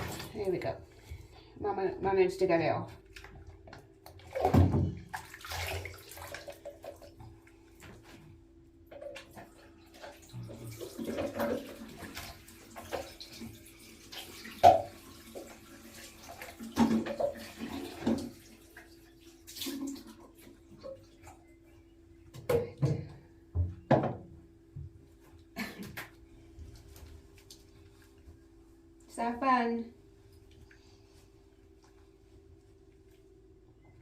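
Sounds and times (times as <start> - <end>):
bath water splashing: 0.0 - 0.6, 3.0 - 8.0, 9.2 - 21.3.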